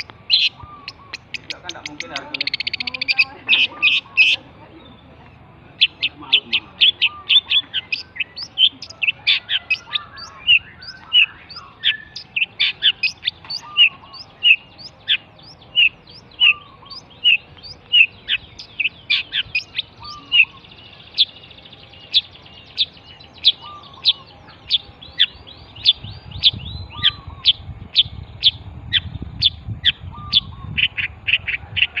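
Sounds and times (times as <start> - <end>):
shrike singing: 0.0 - 32.0
low rumble: 24.8 - 31.8.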